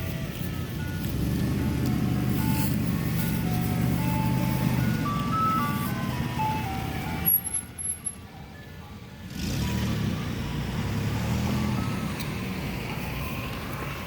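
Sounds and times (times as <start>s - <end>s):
ice cream truck chime tune: 0.0s - 9.1s, 11.6s - 13.5s
vehicle engine rumble: 0.0s - 14.0s.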